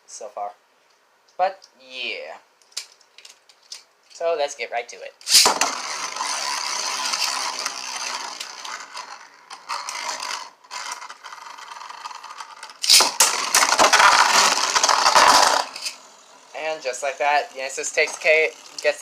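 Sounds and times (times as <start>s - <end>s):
spinning top launcher ripped: 5.2s - 9.1s, 12.8s - 16.0s
spinning tops clashing: 5.2s - 16.2s
spinning tops whirring and scraping: 5.2s - 19.0s.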